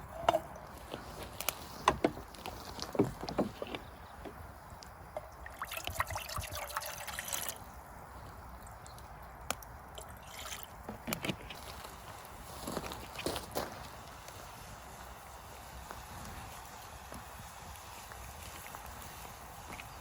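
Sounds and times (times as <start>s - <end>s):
liquid trickling: 2.2s - 12.2s.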